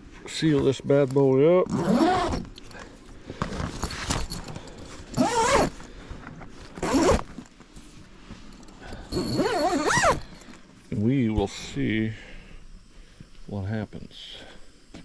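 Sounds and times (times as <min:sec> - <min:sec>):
zipper being pulled: 0:01.6 - 0:02.5, 0:05.1 - 0:05.8, 0:06.6 - 0:07.4, 0:09.1 - 0:10.3.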